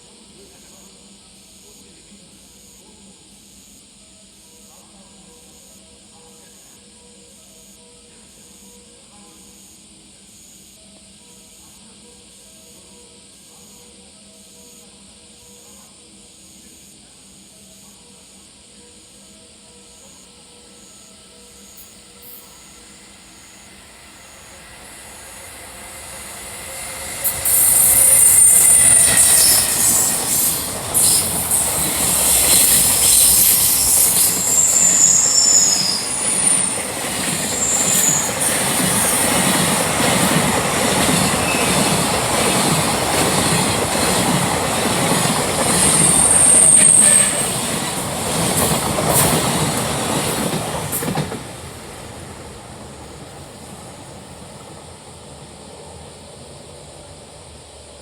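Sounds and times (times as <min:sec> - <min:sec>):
train wheels rumbling on rail: 0:21.8 - 0:58.0
high-pitched wheel squeals: 0:26.3 - 0:39.3, 0:45.7 - 0:47.6.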